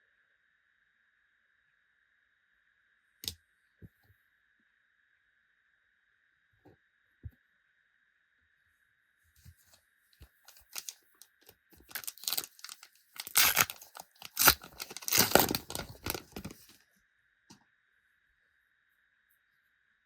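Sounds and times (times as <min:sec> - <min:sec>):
foil packet tearing and crinkling: 0:10.5 - 0:11.0, 0:11.8 - 0:16.8.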